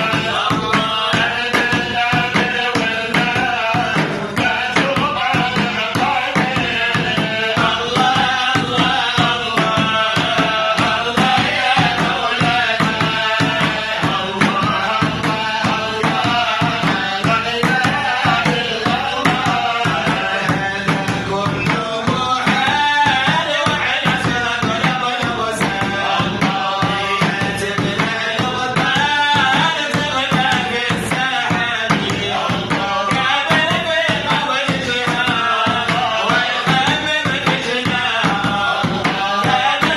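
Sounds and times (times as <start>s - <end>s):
folk singing: 0.0s - 39.9s
hand drums and percussion: 0.0s - 39.9s.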